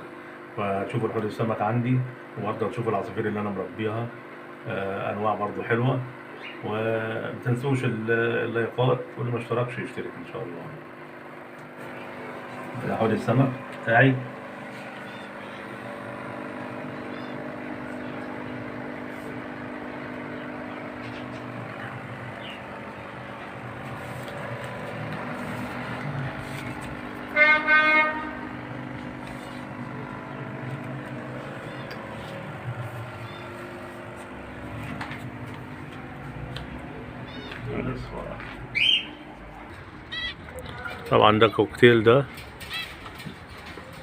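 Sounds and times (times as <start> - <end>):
steady low hum: 0.0 - 44.0
faint chirps: 16.6 - 18.6
vehicle horn blasts: 27.2 - 28.8.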